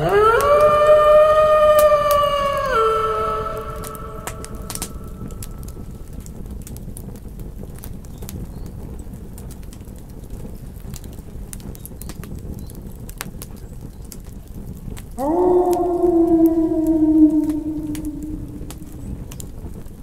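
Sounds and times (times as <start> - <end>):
campfire crackling: 0.0 - 20.0
low rumble: 3.1 - 6.1, 15.2 - 19.5
fire pops and snaps: 3.6 - 20.0.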